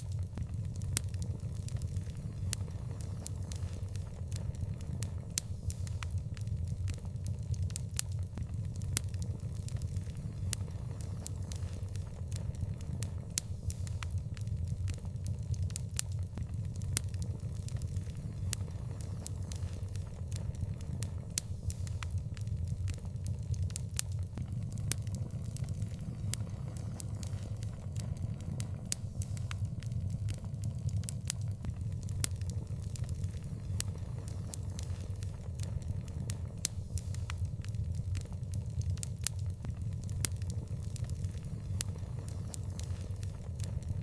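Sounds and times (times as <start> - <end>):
wood fire crackling and popping: 24.3 - 43.9
fire low rumble: 24.4 - 44.0.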